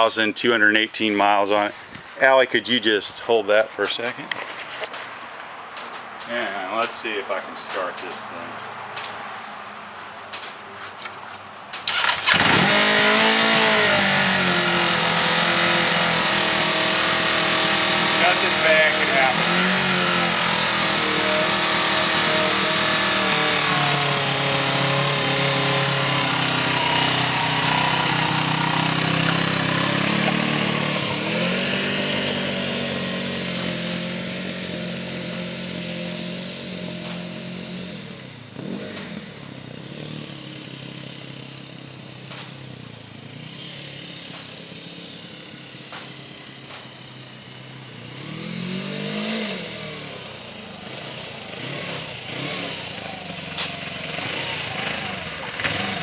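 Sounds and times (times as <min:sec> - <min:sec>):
motorcycle engine revving: 0:11.8 - 0:56.0.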